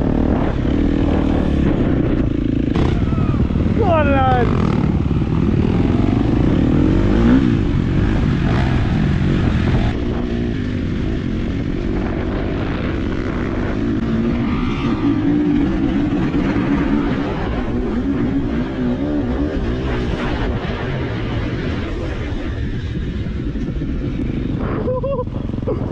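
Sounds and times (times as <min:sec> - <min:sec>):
motocross bike engine revving: 0:00.0 - 0:10.0.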